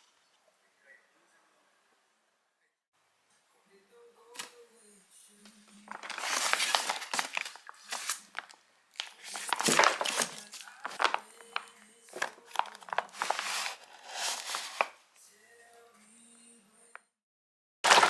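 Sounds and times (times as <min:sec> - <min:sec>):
plastic packaging crinkling: 0:05.9 - 0:15.0.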